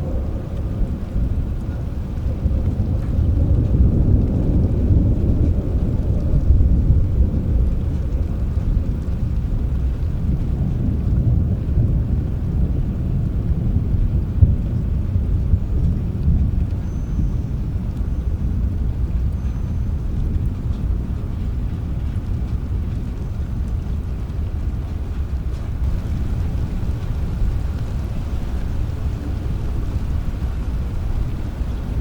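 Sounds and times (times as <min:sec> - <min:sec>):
rain: 0:00.0 - 0:32.0
thunder rumbling: 0:00.0 - 0:32.0.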